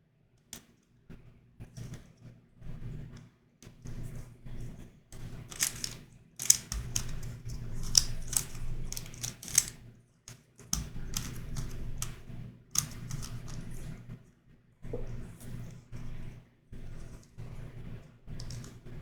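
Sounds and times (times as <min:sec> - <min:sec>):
plastic puzzle clicking: 0:05.5 - 0:12.2, 0:12.8 - 0:13.7, 0:18.4 - 0:18.8.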